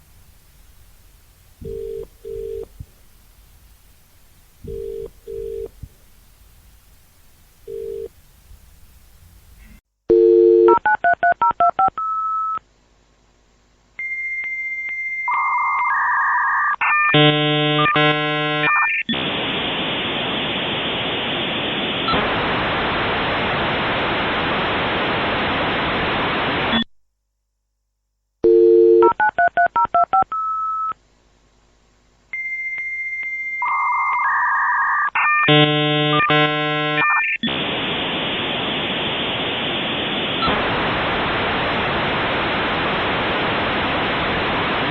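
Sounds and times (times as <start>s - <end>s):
hiss of static: 0.0s - 9.8s, 17.3s - 26.9s, 35.5s - 44.9s
modem answer tone: 1.6s - 2.7s
warbling modem handshake tones: 1.6s - 2.8s, 4.6s - 5.9s, 7.6s - 8.1s, 14.0s - 19.5s, 32.4s - 44.9s.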